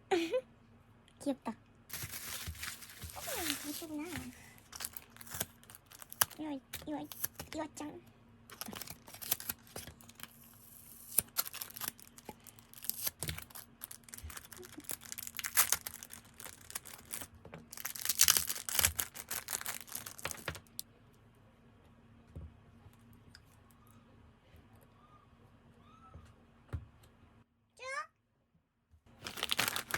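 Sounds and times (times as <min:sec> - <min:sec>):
packaging torn and crinkled: 0:01.9 - 0:07.6, 0:08.5 - 0:20.8, 0:29.1 - 0:29.9.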